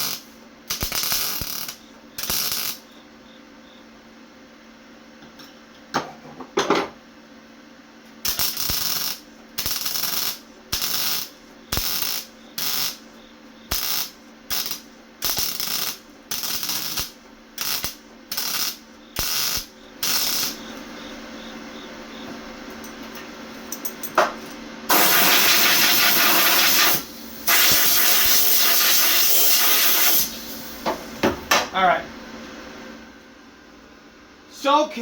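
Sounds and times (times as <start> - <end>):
crackling welding arc: 0.0 - 2.9, 8.2 - 20.9, 24.9 - 30.8.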